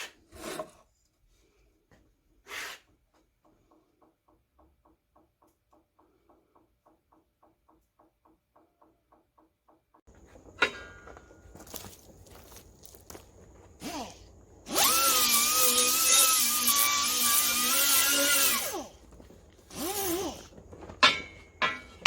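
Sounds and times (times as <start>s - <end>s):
handling sounds: 10.1s - 14.4s
power drill motor whine: 13.8s - 19.0s, 19.7s - 20.6s.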